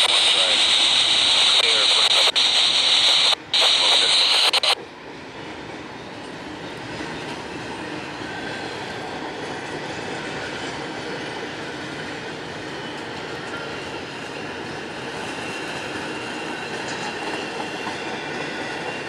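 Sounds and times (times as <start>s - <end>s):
steel wheels on rail: 5.0s - 19.0s.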